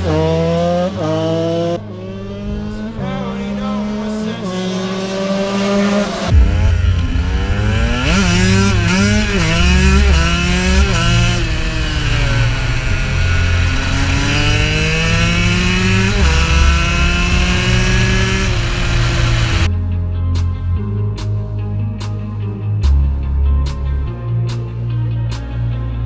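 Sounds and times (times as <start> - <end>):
dirt bike engine revving: 0.0 - 19.7.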